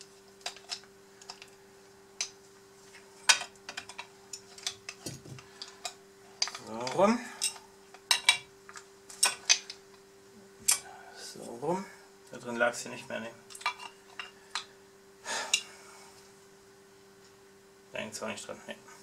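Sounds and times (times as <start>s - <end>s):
metal parts clicking and knocking: 3.3s - 8.4s.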